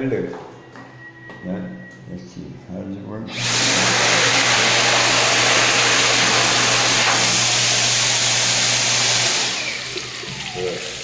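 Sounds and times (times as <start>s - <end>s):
hand dryer running: 3.3s - 11.0s.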